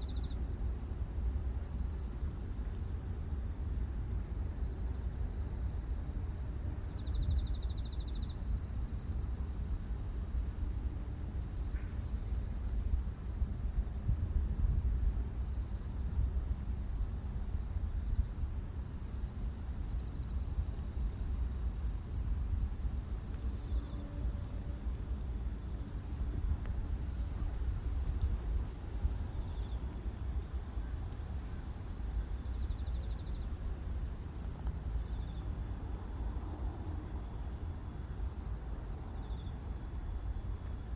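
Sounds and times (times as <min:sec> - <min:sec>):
low steady rumble: 0:09.5 - 0:34.7.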